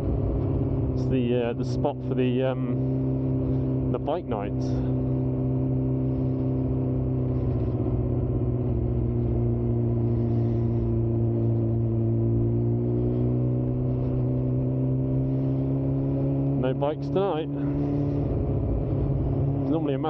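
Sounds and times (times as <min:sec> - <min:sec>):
motorcycle engine cruising: 0:00.0 - 0:20.0.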